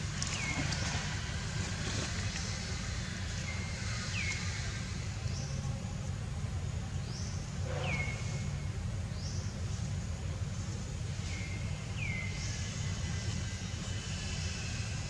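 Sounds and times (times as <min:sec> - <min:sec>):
steady low rumble: 0:00.0 - 0:07.5.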